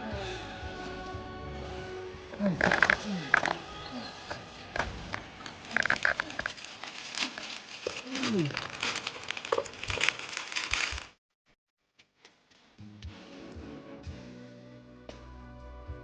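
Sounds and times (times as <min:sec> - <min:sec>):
crackling rustling handling noise: 0:04.2 - 0:11.2.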